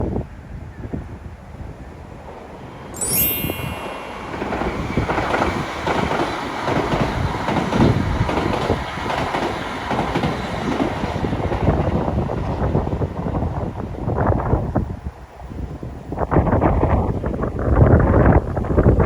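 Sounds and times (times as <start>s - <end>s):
brief high-pitched tone: 3.0s - 5.1s
train rushing past: 3.1s - 12.8s.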